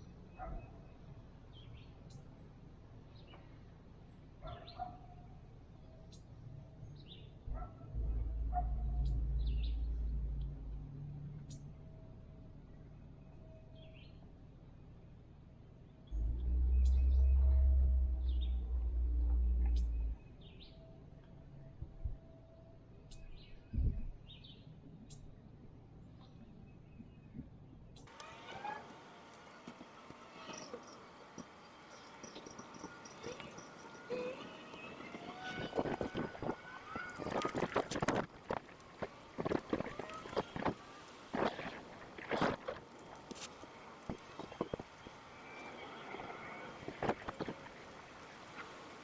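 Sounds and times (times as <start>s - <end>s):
faint outdoor background: 0.0s - 49.0s
low rumble on the microphone: 6.4s - 14.1s, 15.9s - 28.8s, 32.7s - 49.0s
small birds chirping: 26.2s - 49.0s
distant animal calls: 28.1s - 49.0s.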